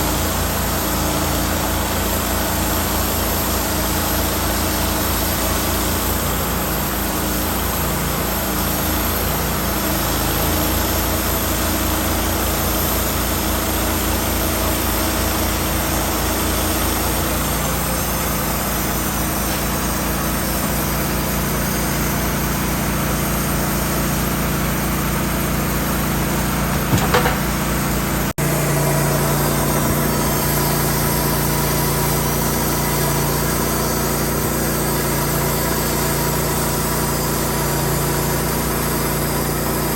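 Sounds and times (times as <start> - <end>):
engine running: 23.2 - 34.0
clatter of clicks: 26.7 - 27.6.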